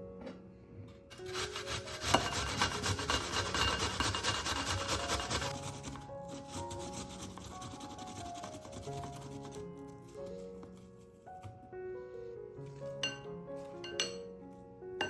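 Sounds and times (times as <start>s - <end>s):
soft background music: 0.0s - 15.0s
rasping scrapes: 1.1s - 10.8s.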